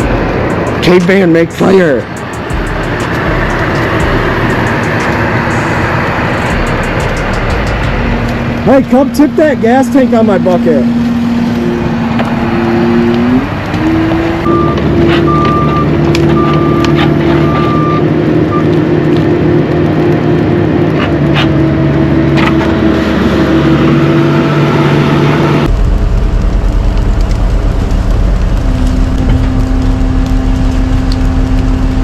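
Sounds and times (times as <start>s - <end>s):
diesel engine running: 0.0s - 32.0s
intermittent beep: 14.5s - 18.7s.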